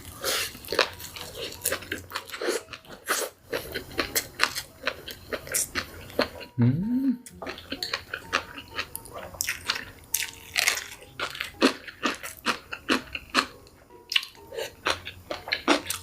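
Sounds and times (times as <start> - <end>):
person biting and chewing food: 7.3 - 13.5.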